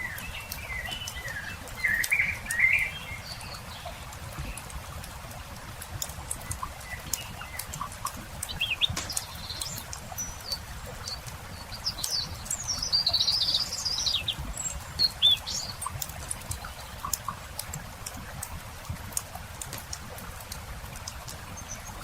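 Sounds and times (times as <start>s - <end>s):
songbird chirping and warbling: 0.0s - 4.7s, 6.4s - 16.0s
campfire crackling: 0.0s - 22.0s.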